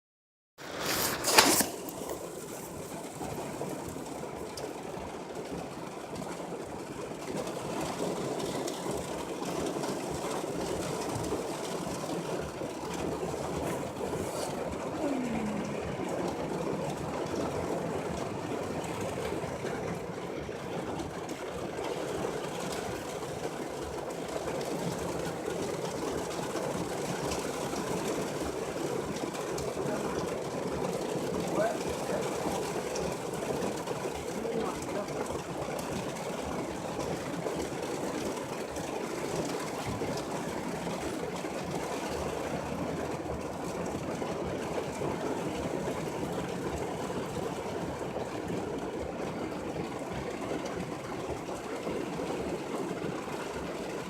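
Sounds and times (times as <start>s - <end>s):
heavy rain falling: 0.6s - 54.0s.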